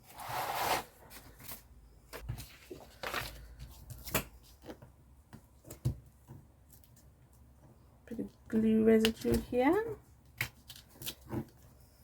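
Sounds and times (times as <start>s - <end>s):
paper rustling: 0.1s - 4.8s.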